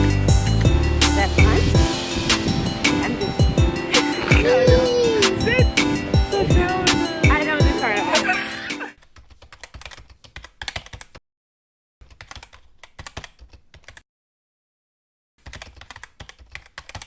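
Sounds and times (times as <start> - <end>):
rapid keyboard typing clicks: 9.0 - 11.2, 12.0 - 14.0, 15.4 - 17.0.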